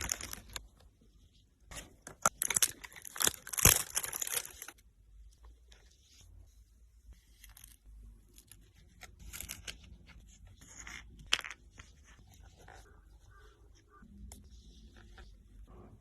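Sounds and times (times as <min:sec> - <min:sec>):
fidget toys crunching and crinkling: 0:00.0 - 0:00.6, 0:02.1 - 0:04.8.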